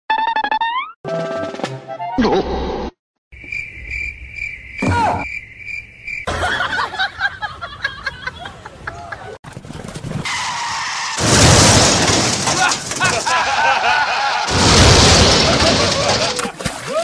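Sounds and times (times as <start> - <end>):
cricket chirping: 3.4 - 6.8.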